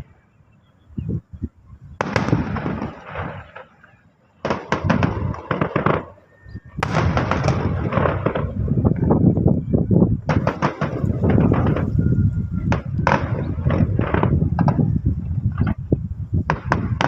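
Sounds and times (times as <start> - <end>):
fireworks bangs and crackling: 2.0 - 17.0.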